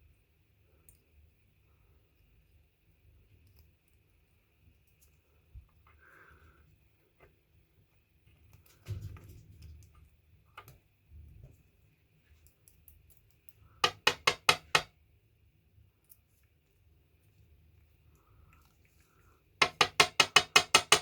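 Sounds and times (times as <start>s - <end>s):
sharp metallic taps: 13.8s - 14.9s, 19.6s - 21.0s.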